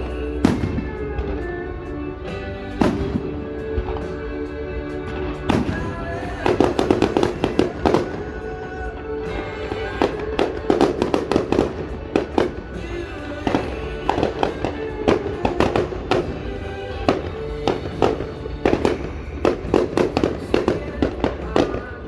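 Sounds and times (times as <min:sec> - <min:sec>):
fireworks bangs and pops: 0:00.0 - 0:01.6, 0:02.3 - 0:22.0
music playing: 0:00.0 - 0:22.0.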